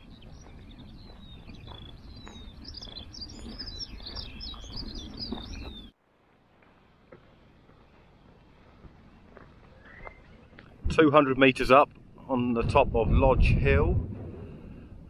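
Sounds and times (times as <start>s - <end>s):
small birds chirping: 0.0s - 6.0s, 7.2s - 12.4s
low rumble: 11.9s - 15.0s.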